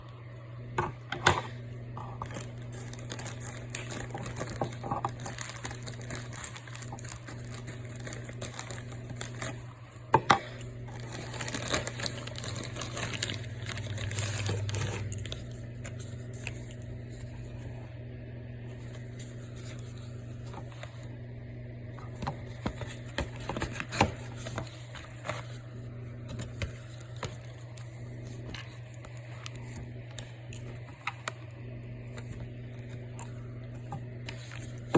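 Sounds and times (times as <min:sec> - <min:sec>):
steady low hum: 0:00.0 - 0:34.9
packaging crinkling and tearing: 0:02.2 - 0:09.7, 0:10.8 - 0:17.4.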